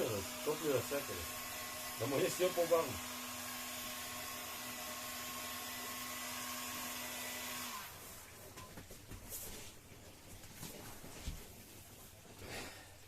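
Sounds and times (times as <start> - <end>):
heat gun blowing: 0.0 - 8.3.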